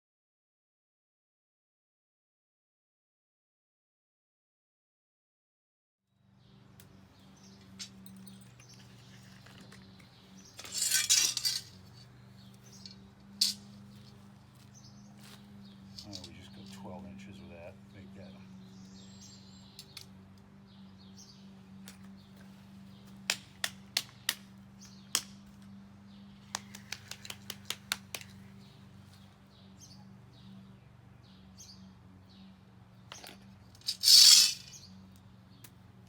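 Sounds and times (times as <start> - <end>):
birds chirping faintly: 6.2 - 36.0
sharp clicks and taps: 26.5 - 28.4
short loud scrape: 33.9 - 34.8.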